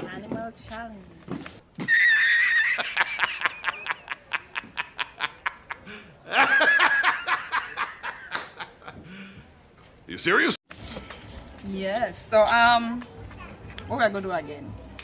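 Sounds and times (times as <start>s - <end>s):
person laughing: 1.8s - 9.1s.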